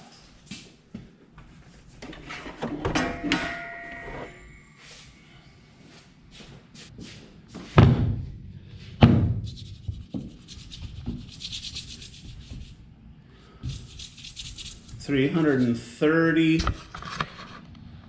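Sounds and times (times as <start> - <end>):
fast rasping: 9.4 - 12.8, 13.6 - 15.1.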